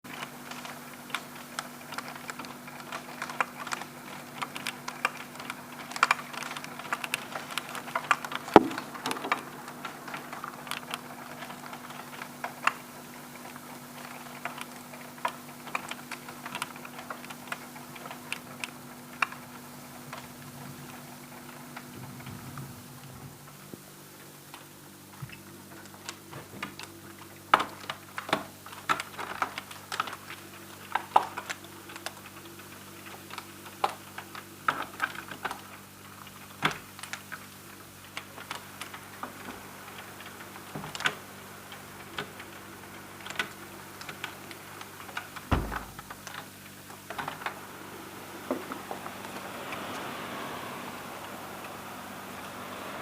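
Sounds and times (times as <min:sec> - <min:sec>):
faint steady hum: 0:00.0 - 0:53.0
hail ticking on window: 0:00.1 - 0:53.0
heavier knock: 0:08.6 - 0:08.9, 0:45.5 - 0:46.0.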